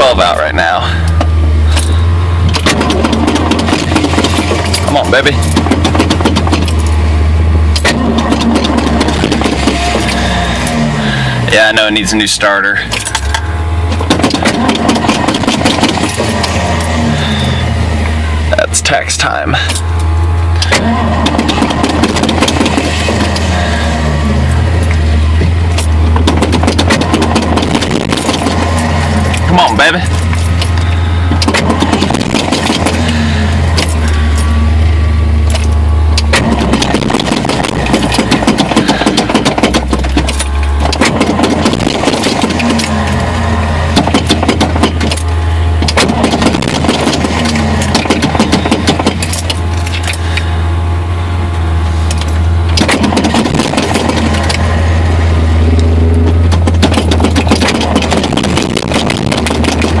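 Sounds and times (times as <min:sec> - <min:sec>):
engine cranking on starter: 0:00.0 - 1:00.0.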